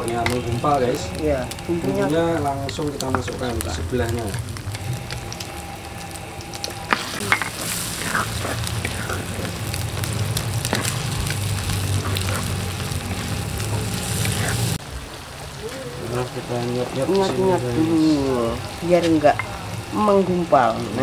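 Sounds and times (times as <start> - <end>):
eggs sizzling in a wok: 0.0 - 21.0
wooden spatula scraping: 6.0 - 14.8.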